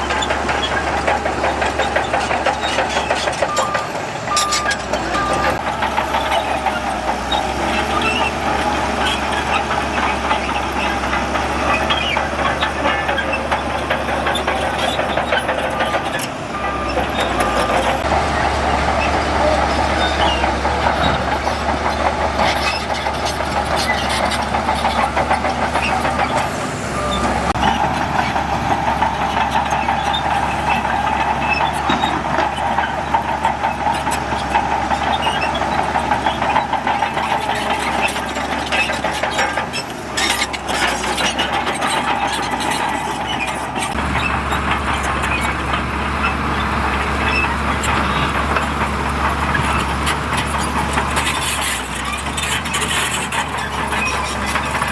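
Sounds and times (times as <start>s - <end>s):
metallic clanks and knocks: 0.0s - 7.9s
diesel engine under load: 0.0s - 54.9s.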